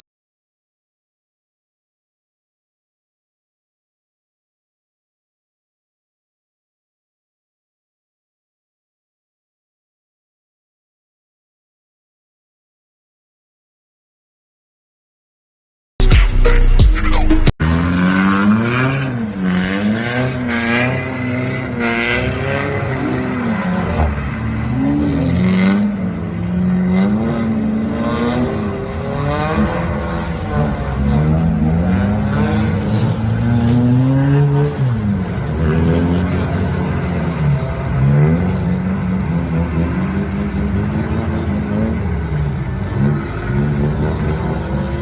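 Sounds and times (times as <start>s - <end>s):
car engine revving: 16.4s - 45.0s.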